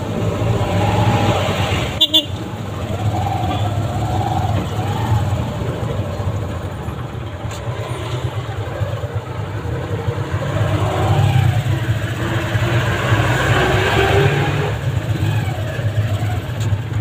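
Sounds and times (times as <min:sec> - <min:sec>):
street traffic: 0:00.0 - 0:17.0
motorcycle engine running: 0:01.8 - 0:17.0.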